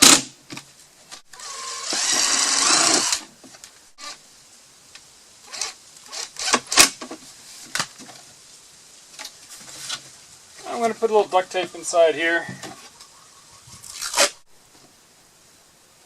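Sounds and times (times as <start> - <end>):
cordless drill driving a screw: 1.3 - 3.3.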